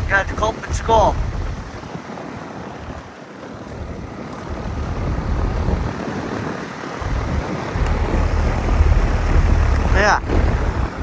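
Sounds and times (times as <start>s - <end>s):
wind buffeting microphone: 0.0s - 11.0s
air conditioner fan rushing air: 7.0s - 11.0s.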